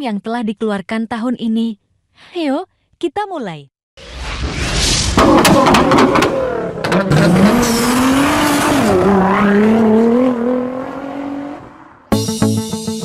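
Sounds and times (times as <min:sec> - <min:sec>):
car engine revving: 0:05.2 - 0:12.1.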